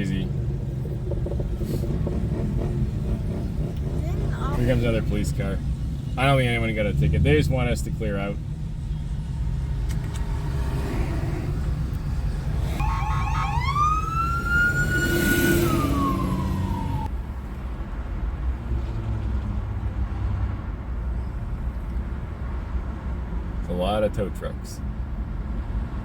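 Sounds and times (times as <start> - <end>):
vehicles rumbling: 0.0 - 26.0
police siren yelping and wailing: 12.6 - 17.1.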